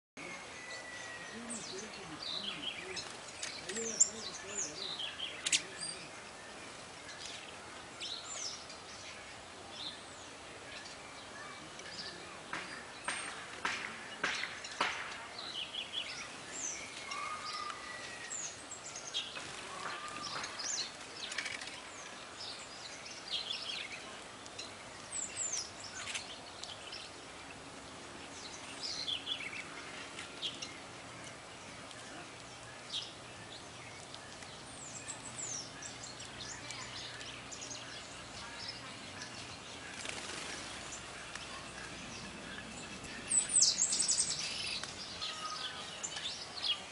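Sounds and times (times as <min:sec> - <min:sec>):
outdoor background noise: 0:00.2 - 0:46.9
songbirds chirping: 0:00.2 - 0:46.9.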